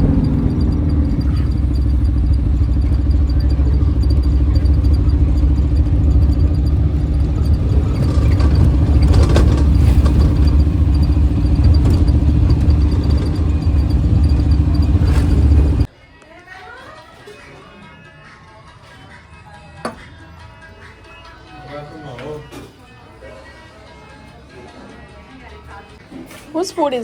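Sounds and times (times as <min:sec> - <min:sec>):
vehicle engine rumbling: 0:00.0 - 0:15.9
clattering knocks: 0:00.6 - 0:15.9.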